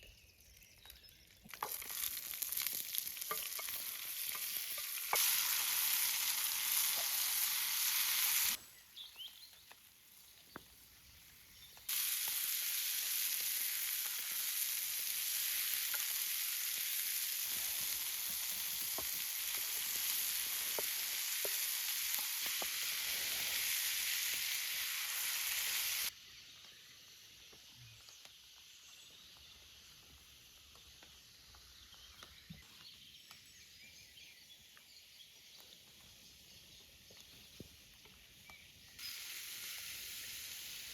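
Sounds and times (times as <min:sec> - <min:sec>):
food sizzling in a frying pan: 0:01.5 - 0:09.3, 0:11.2 - 0:26.2, 0:38.4 - 0:40.9.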